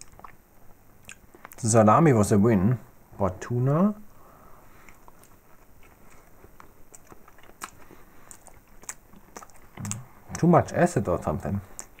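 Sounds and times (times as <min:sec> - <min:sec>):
faint chewing of a sandwich: 0:00.0 - 0:01.6, 0:04.4 - 0:10.5, 0:11.5 - 0:12.0
mouth clicks: 0:11.7 - 0:12.0.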